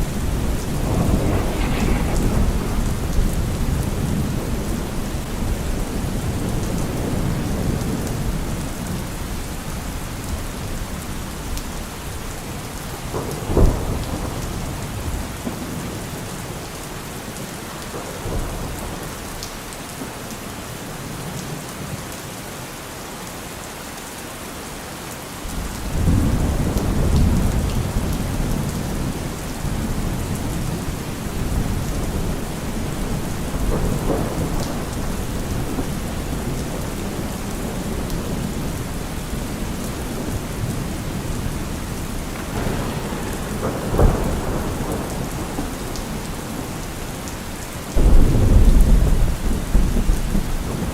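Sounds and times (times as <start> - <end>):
loud thunderclap: 0.0 - 8.7, 12.9 - 16.3, 25.5 - 50.9
thunder rumbling: 0.0 - 19.4, 25.5 - 50.9
steady rain falling: 0.0 - 50.9.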